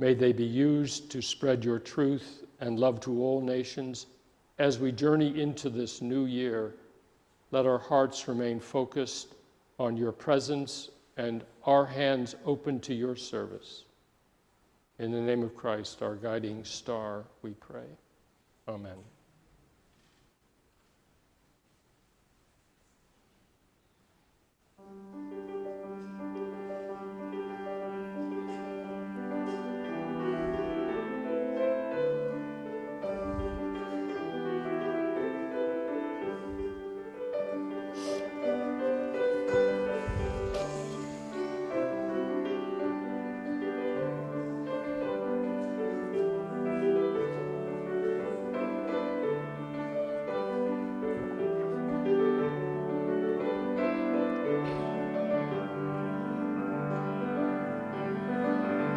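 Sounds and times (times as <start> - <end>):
slow piano music: 24.8 - 58.9
soft low thumps: 33.2 - 33.8, 40.0 - 40.7.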